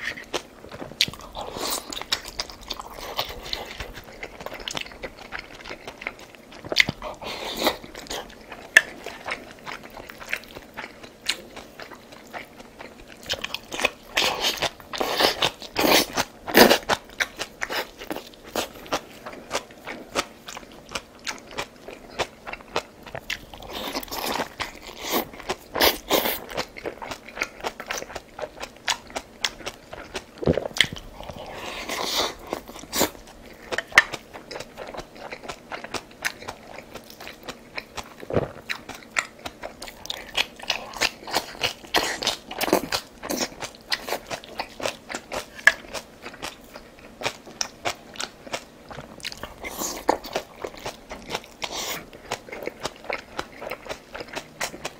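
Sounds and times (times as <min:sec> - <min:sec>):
person chewing crunchy food: 0:00.0 - 0:54.9.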